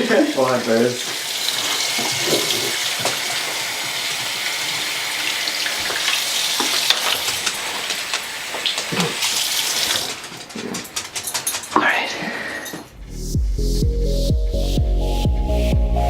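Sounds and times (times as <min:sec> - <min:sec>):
running water hissing: 0:00.0 - 0:10.2.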